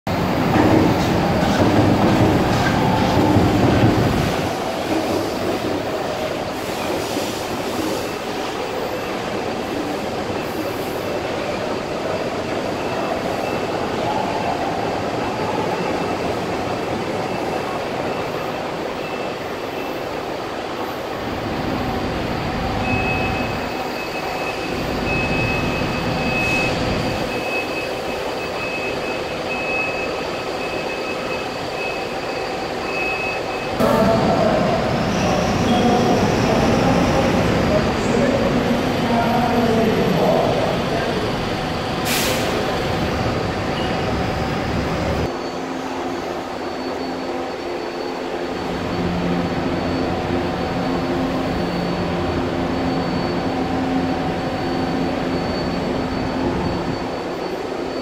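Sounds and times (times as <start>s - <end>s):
high wheel squeal: 21.8s - 58.0s.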